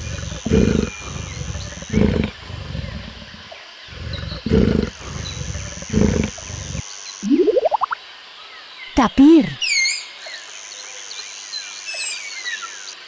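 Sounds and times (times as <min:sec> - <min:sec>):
big cat growling: 0:00.0 - 0:06.8.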